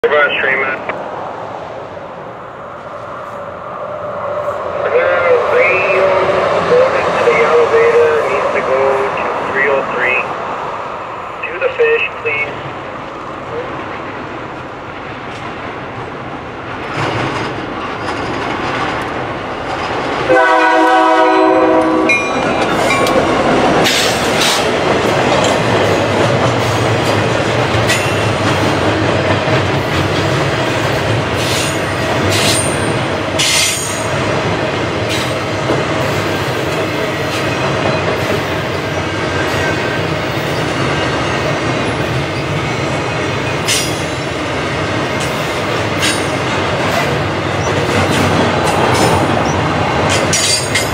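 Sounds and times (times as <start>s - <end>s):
train wheels rumbling: 0.2s - 50.9s
locomotive air horn: 20.3s - 22.2s.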